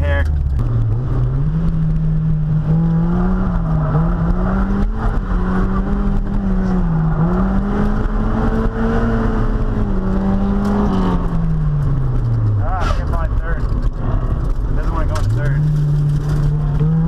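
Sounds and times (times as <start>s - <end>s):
car engine revving under throttle: 0.2s - 17.0s.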